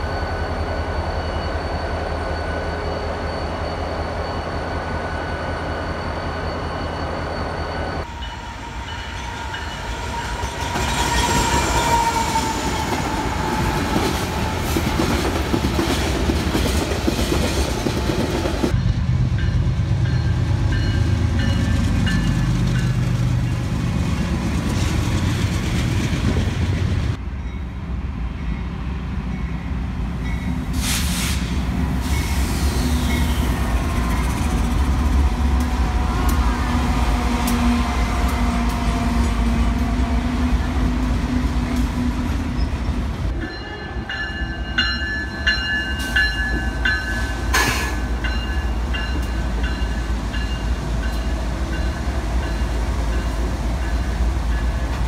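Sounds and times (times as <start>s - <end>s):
crossing bell ringing: 0.0s - 11.4s, 18.7s - 24.3s, 43.3s - 55.0s
freight train rumbling: 0.0s - 55.0s.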